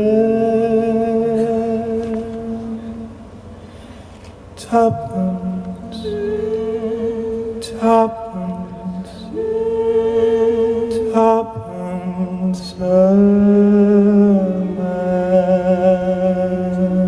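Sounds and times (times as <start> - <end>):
man singing wordless notes: 0.0 - 3.4, 4.5 - 17.0
low steady drone: 0.0 - 17.0
breaths: 2.8 - 4.5.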